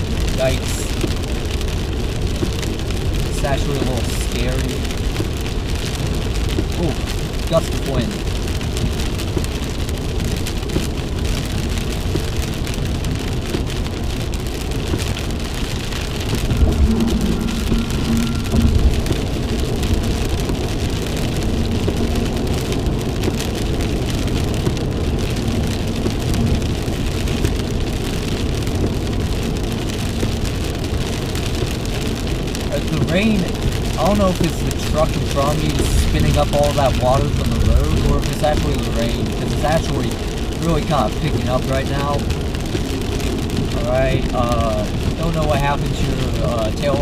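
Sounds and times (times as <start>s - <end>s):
heavy rain hitting vehicle: 0.0s - 47.0s
low steady hum: 16.2s - 20.4s.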